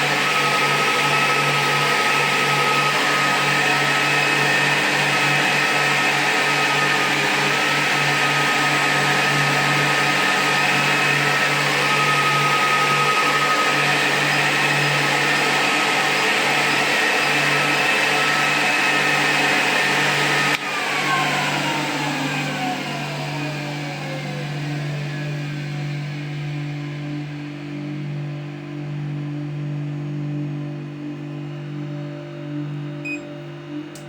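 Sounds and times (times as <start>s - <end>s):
electric motor whining: 0.0s - 25.9s.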